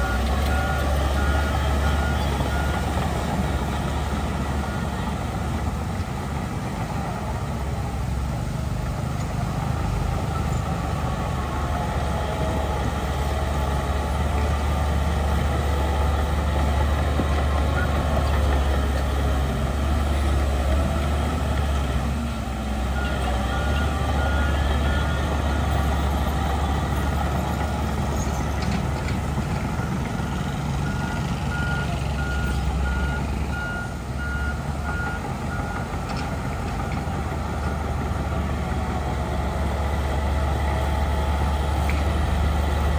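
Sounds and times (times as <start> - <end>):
heavy diesel machinery rumbling: 0.0 - 42.9
reversing alarm beeping: 29.8 - 35.9.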